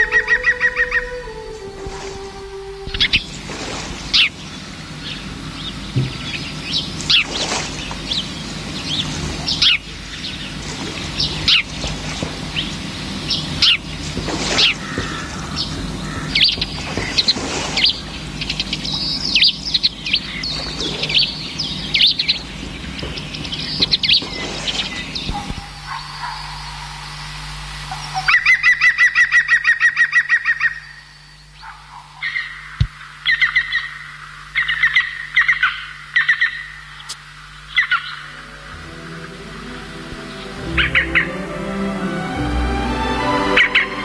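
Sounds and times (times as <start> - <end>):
steady low hum: 0.0 - 44.0
small birds chirping: 4.1 - 38.8.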